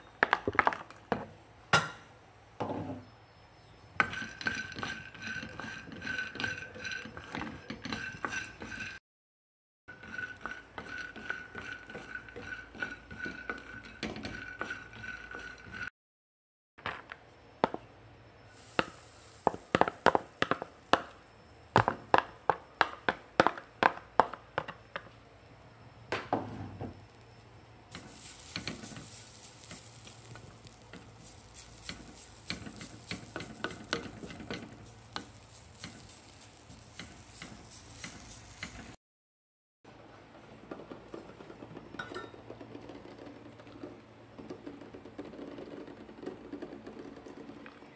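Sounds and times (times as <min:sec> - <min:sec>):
wooden spoon scraping a pan: 0:04.0 - 0:09.0, 0:09.9 - 0:15.9, 0:18.5 - 0:21.2, 0:27.9 - 0:39.0
steady roasting hiss: 0:17.4 - 0:39.0.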